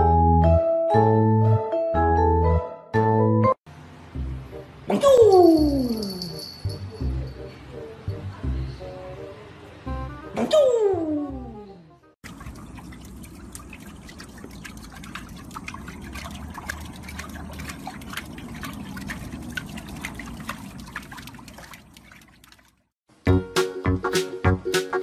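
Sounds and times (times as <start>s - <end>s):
small water splashes in pool: 12.2s - 23.0s.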